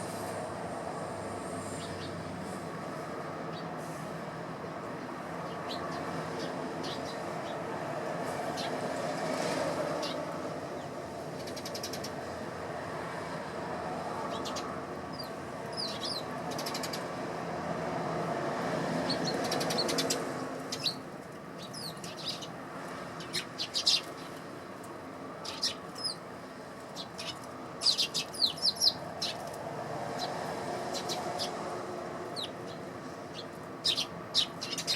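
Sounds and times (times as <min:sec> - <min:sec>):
sparrows chirping: 0:01.6 - 0:02.3, 0:03.4 - 0:03.8, 0:04.7 - 0:07.7, 0:08.4 - 0:08.9, 0:09.9 - 0:12.4, 0:14.1 - 0:17.3, 0:19.0 - 0:24.6, 0:25.3 - 0:34.9.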